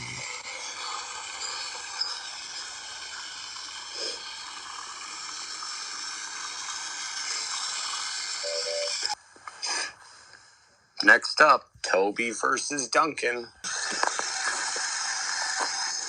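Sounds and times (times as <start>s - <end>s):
steady steam-like hissing: 0.0s - 10.2s, 13.7s - 16.0s
short tone: 8.4s - 9.0s.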